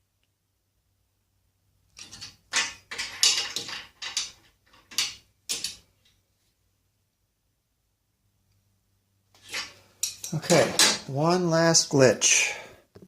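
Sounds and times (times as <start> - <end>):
metal hardware scraping and clunking: 2.0 - 5.9, 9.4 - 11.1.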